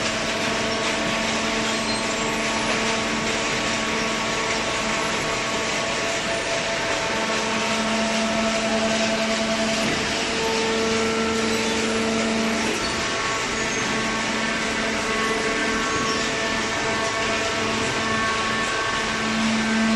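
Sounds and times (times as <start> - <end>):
shredder and baler machinery: 0.0 - 19.9.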